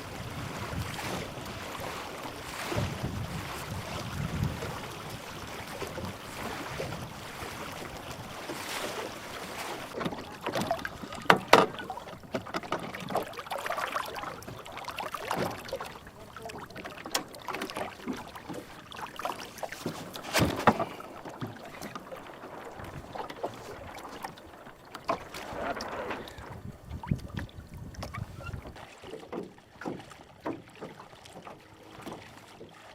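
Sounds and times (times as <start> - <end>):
water splashing and sloshing: 0.0 - 32.9
knocks against boat hull: 10.0 - 13.2, 19.8 - 21.6.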